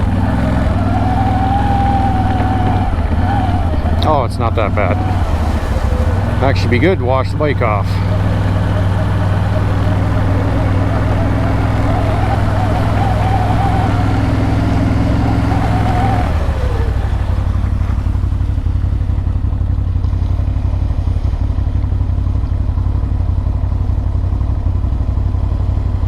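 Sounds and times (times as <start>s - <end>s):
atv engine running with whine: 0.0s - 26.0s.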